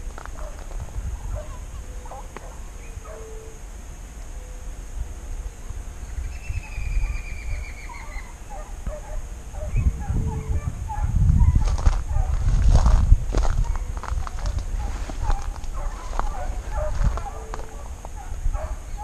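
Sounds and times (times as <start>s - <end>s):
wind rumble on microphone: 0.0s - 3.3s, 4.9s - 19.0s
bird trilling: 6.0s - 11.6s.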